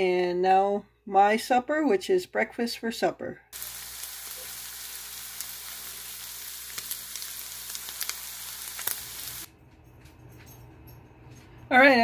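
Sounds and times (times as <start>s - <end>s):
food sizzling in a frying pan: 3.6s - 9.5s.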